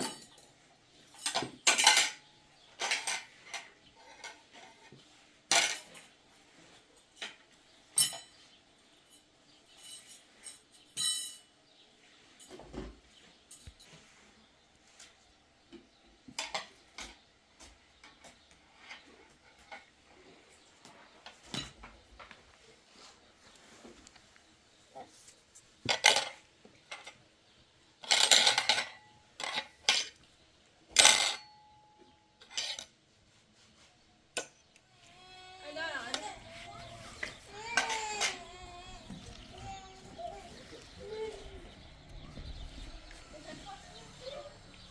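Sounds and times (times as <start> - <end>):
dishes clinking: 1.2 - 4.5
metal dishes clattering: 1.2 - 6.2, 28.0 - 30.2, 30.9 - 31.6, 32.4 - 33.0, 36.7 - 41.3.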